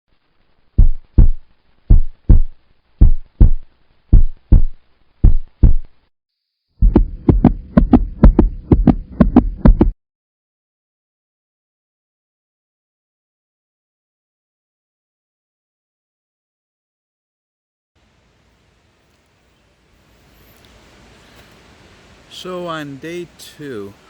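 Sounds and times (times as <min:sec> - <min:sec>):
heartbeat-like thumps: 0:00.8 - 0:05.9, 0:06.8 - 0:10.0
steady hum: 0:06.8 - 0:09.9.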